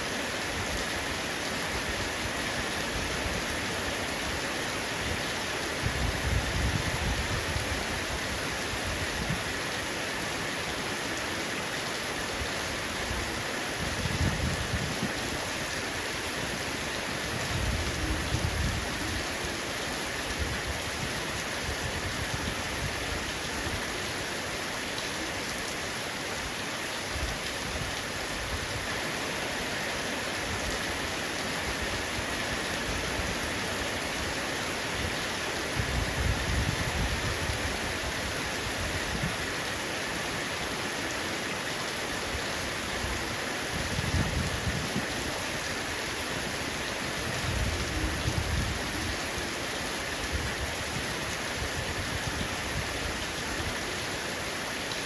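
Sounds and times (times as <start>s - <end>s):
heavy rain on a roof: 0.0s - 55.0s.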